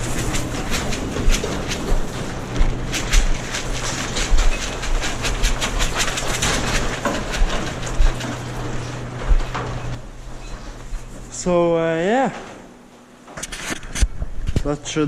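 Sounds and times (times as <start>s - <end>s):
tractor engine hum: 0.0s - 11.8s
rattling and clanking: 0.0s - 14.0s.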